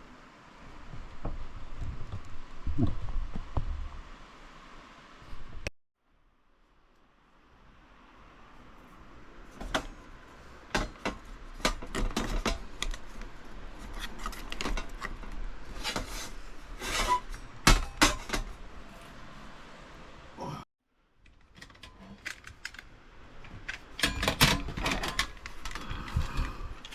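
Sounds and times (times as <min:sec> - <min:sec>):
clicks and scrapes of gear: 0:11.3 - 0:17.6.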